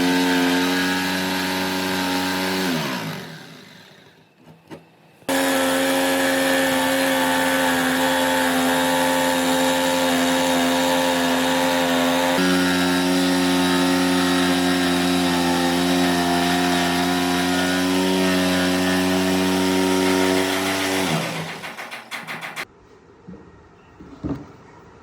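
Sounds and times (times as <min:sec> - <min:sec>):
power tool motor running: 0:00.0 - 0:04.3, 0:05.3 - 0:22.6.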